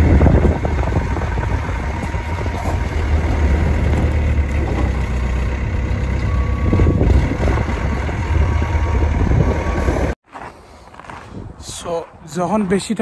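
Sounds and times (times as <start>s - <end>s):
diesel truck engine rumbling: 0.0s - 10.2s.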